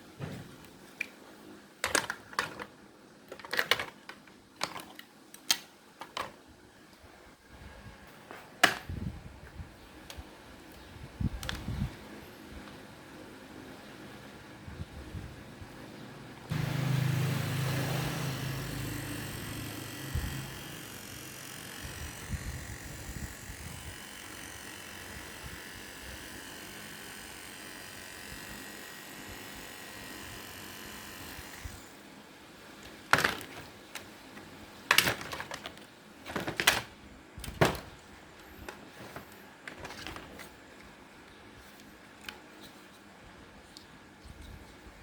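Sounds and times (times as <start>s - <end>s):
small motor running: 16.5s - 32.0s.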